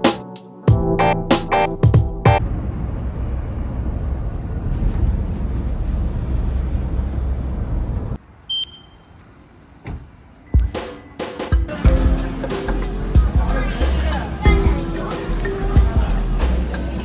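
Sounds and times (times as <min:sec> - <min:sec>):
short high electronic beep: 0:08.5 - 0:09.1.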